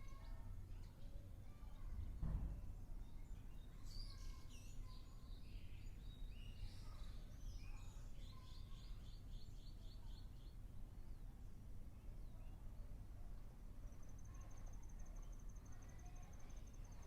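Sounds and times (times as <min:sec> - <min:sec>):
low steady background rumble: 0:00.0 - 0:17.0
birds calling and chirping: 0:02.9 - 0:11.2.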